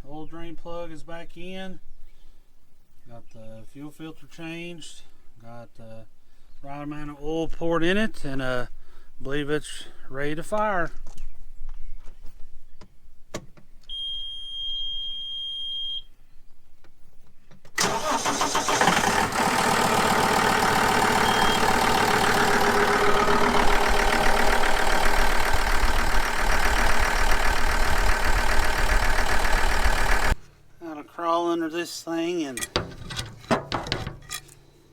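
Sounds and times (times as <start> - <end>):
diesel tractor engine running: 17.8 - 30.4.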